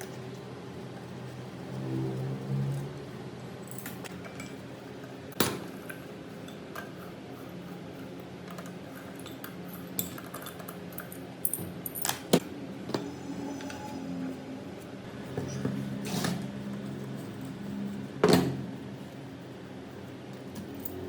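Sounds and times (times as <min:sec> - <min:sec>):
steady low hum: 0:10.9 - 0:21.0.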